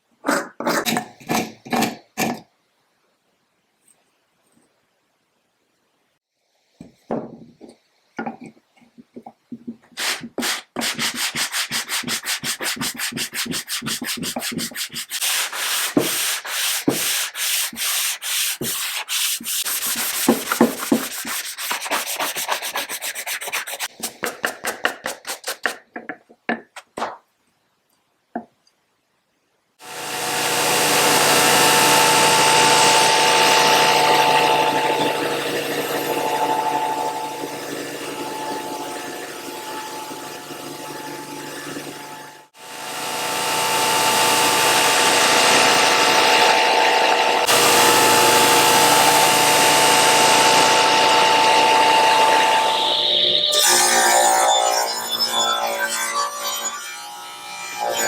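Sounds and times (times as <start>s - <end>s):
wood sanded by hand: 10.0s - 25.8s, 43.0s - 52.3s
power tool running: 29.8s - 53.9s.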